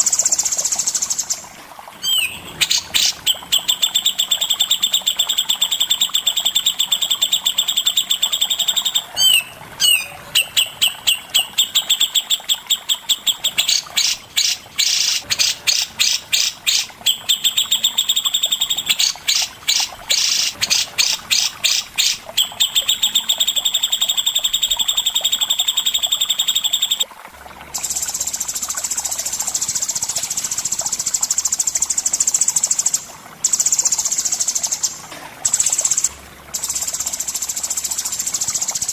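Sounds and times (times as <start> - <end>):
songbird trilling: 2.0 - 24.4.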